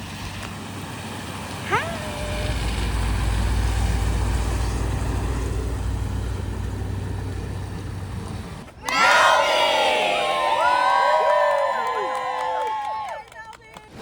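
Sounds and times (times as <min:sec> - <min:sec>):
vehicle engine running: 0:00.0 - 0:08.7.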